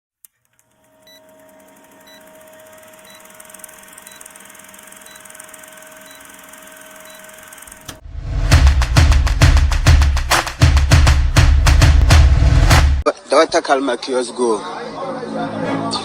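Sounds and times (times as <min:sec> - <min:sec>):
short high beeps: 0:06.0 - 0:06.4
drum-heavy music: 0:08.1 - 0:13.0.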